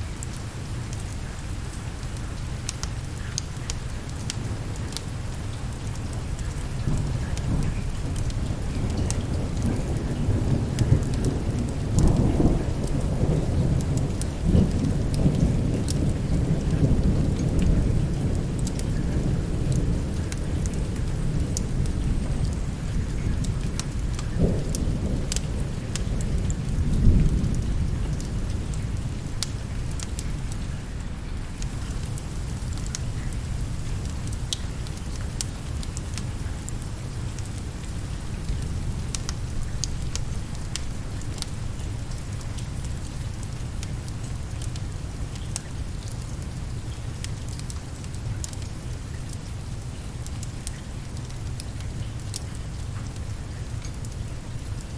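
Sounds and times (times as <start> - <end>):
steady rain: 0.0 - 54.9
rolling thunder: 6.8 - 30.6.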